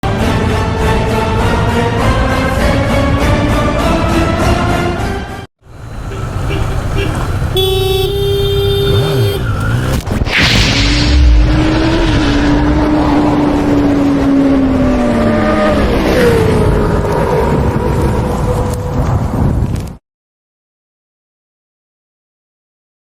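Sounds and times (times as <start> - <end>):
motorcycle engine at speed: 5.6 - 10.3
wind rumble: 5.7 - 20.0.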